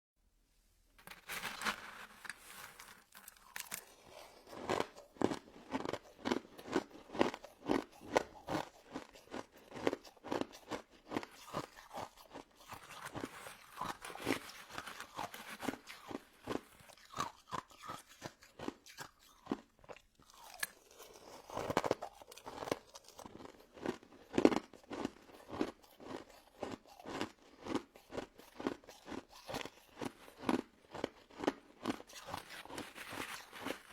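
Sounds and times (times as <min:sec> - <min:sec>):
person crunching ice dessert: 0:01.0 - 0:33.9.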